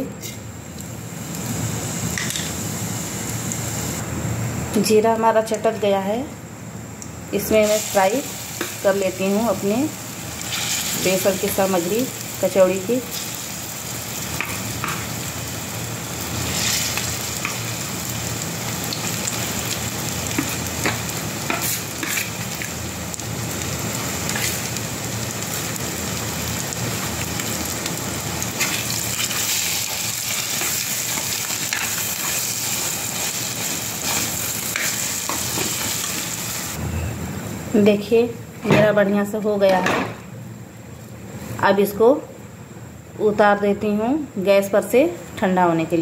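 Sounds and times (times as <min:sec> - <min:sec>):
paste sizzling in hot oil: 0:07.5 - 0:36.8
spatula scraping a pan: 0:20.4 - 0:22.4.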